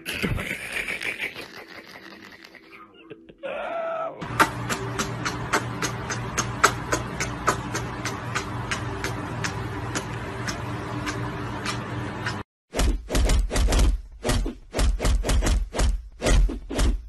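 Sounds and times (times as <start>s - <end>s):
steady low hum: 4.2s - 12.4s
kissing smacks: 4.3s - 11.8s.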